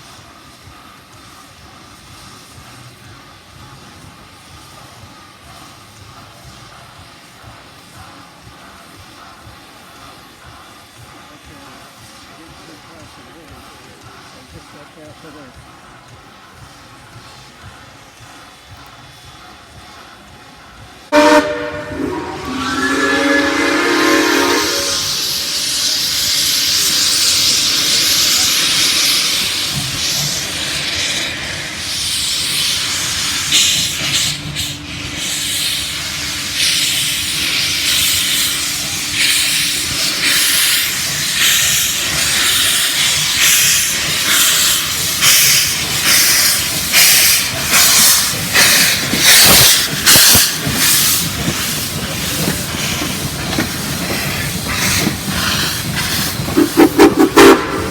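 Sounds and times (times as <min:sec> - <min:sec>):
steam locomotive exhaust chuffs: 0:00.0 - 0:57.9
steam hissing: 0:21.0 - 0:57.9.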